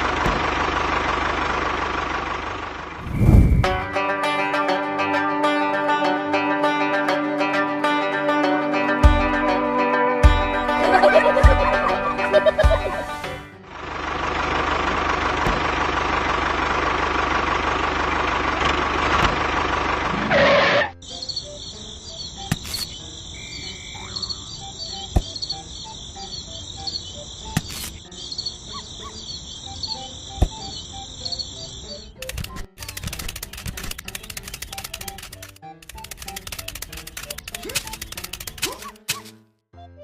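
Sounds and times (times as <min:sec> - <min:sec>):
insects chirping: 0:21.0 - 0:33.0
faint clicks: 0:32.2 - 0:39.2.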